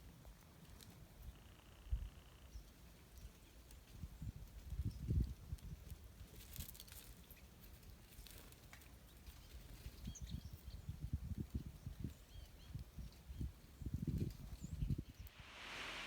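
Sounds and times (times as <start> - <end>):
songbird chirps: 1.1 - 5.8, 9.0 - 16.0.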